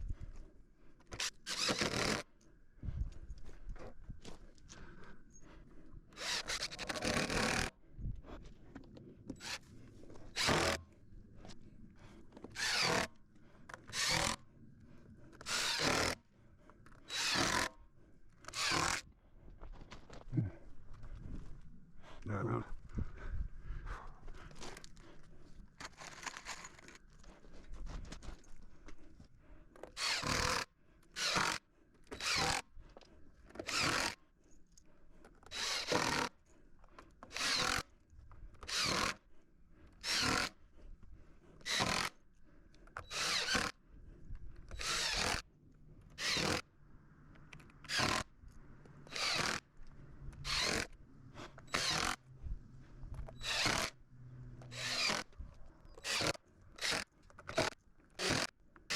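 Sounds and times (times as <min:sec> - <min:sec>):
hand saw cutting wood: 0:01.0 - 0:02.3, 0:06.1 - 0:07.7, 0:09.3 - 0:10.9, 0:12.0 - 0:14.4, 0:15.2 - 0:16.3, 0:16.9 - 0:17.8, 0:18.4 - 0:19.1, 0:25.8 - 0:27.0, 0:29.8 - 0:32.6, 0:33.4 - 0:34.2, 0:35.2 - 0:38.0, 0:38.6 - 0:40.7, 0:41.6 - 0:42.2, 0:42.8 - 0:43.8, 0:44.6 - 0:45.5, 0:46.1 - 0:46.7, 0:47.8 - 0:48.3, 0:49.0 - 0:49.7, 0:50.3 - 0:52.3, 0:53.1 - 0:54.0, 0:54.6 - 0:58.9.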